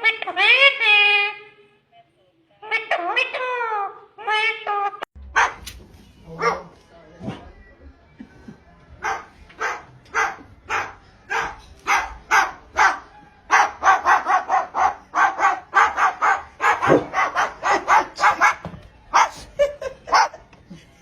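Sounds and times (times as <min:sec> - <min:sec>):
animal barking calls: 0:09.0 - 0:20.4.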